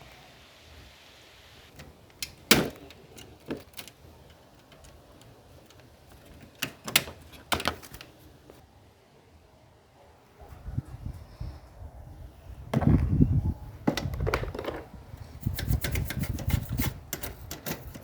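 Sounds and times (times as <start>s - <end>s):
small parts clicking and knocking: 1.7s - 8.2s, 13.9s - 18.0s.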